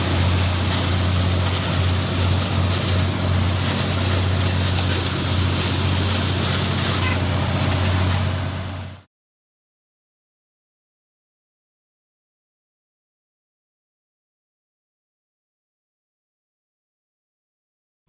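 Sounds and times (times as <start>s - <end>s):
tractor engine hum: 0.0s - 9.0s.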